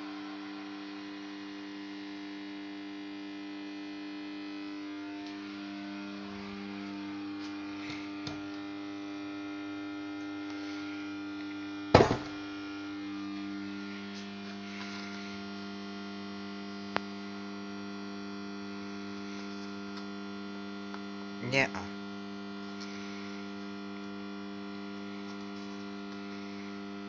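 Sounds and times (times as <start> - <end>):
street light ballast humming: 4.5 - 27.0
loud knock: 12.0 - 12.4.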